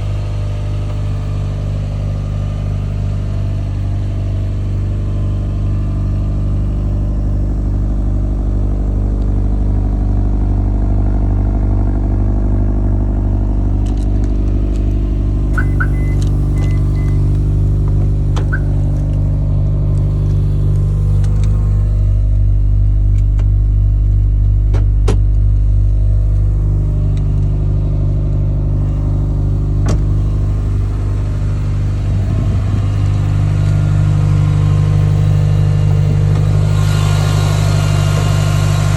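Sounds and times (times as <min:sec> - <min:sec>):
car engine idling: 0:00.0 - 0:38.9
clicks: 0:13.8 - 0:19.2
short high beeps: 0:15.6 - 0:17.2.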